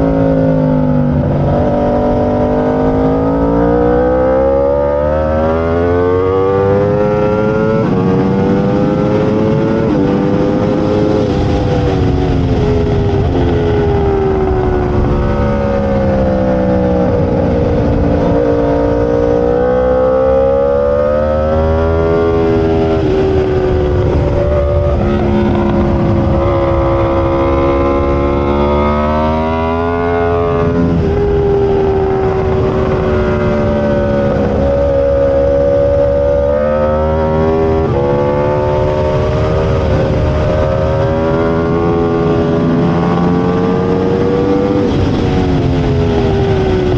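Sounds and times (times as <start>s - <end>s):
superbike engine accelerating and braking: 0.0s - 46.9s
wind rushing: 21.5s - 46.9s.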